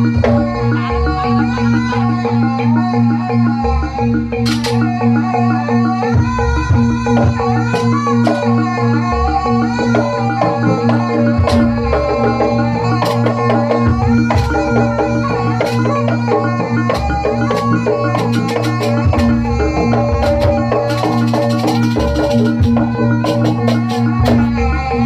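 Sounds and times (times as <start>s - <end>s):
drums: 0.0s - 25.0s
gamelan ensemble playing: 0.0s - 25.0s
struck metal percussion: 4.4s - 5.0s, 6.7s - 25.0s.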